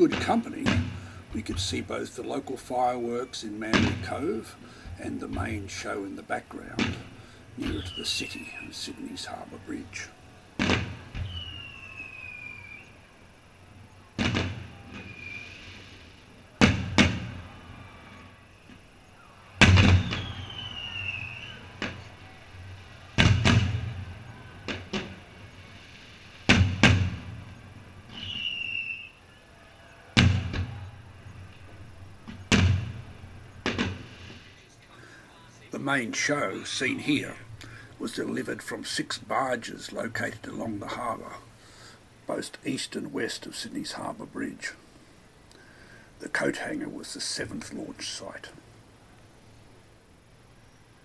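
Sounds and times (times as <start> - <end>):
fireworks bursting: 0.0 - 29.2, 30.0 - 49.9
falling whistles: 4.1 - 38.4.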